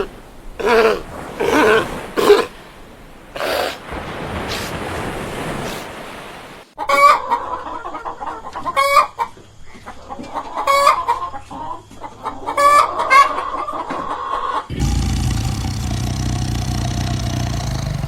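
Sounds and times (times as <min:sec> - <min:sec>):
chicken clucking: 0:06.8 - 0:14.7.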